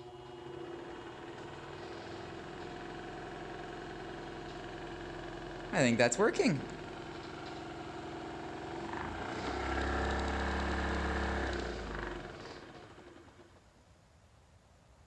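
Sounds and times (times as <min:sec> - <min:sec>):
scroll saw motor humming: 0:00.0 - 0:05.8.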